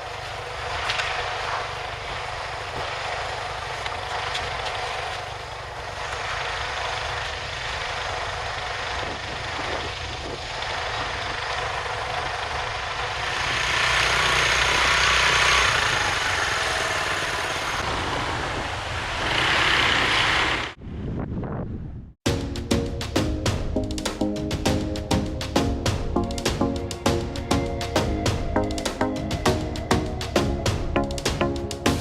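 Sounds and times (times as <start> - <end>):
motorcycle engine running: 0.1 - 18.1.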